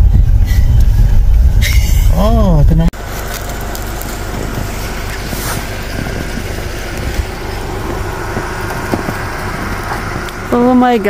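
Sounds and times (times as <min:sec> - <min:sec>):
car engine idling: 0:00.0 - 0:11.0
faint engine knocks: 0:03.0 - 0:11.0.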